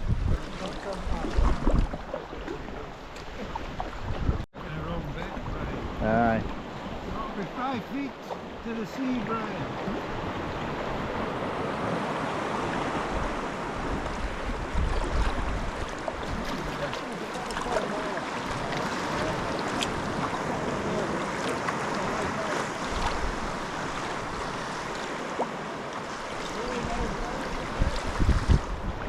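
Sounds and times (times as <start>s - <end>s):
wind buffeting microphone: 0.0s - 4.5s, 9.8s - 24.9s, 26.6s - 29.0s
small water splashes: 0.0s - 29.0s
waves lapping against rocks: 0.0s - 29.0s.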